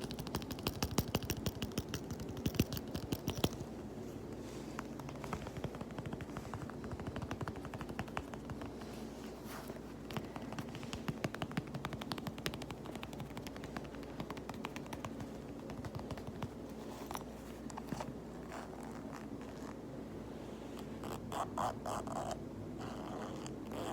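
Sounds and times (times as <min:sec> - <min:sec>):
fast tapping on fabric pouch: 0:00.0 - 0:19.4.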